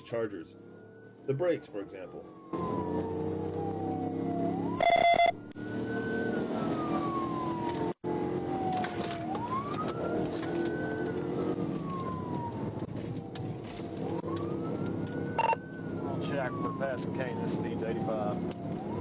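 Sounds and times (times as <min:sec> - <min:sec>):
car engine and road noise: 0:00.0 - 0:19.0
police siren wailing: 0:00.1 - 0:19.0.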